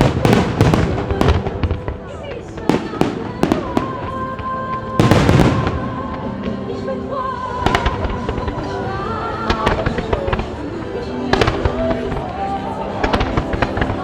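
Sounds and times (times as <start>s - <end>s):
fireworks bangs with crackle: 0.0s - 6.7s
music over loudspeakers: 0.0s - 14.0s.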